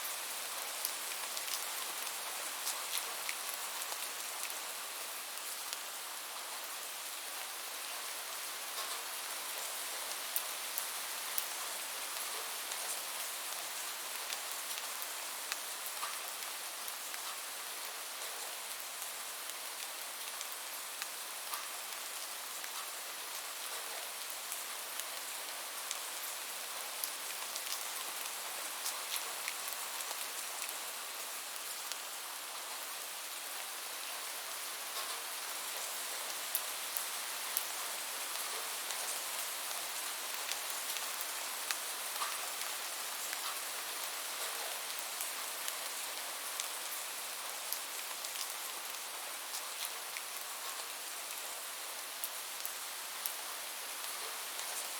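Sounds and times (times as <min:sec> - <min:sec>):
rain drops ticking: 0:00.5 - 0:04.7, 0:35.0 - 0:54.9.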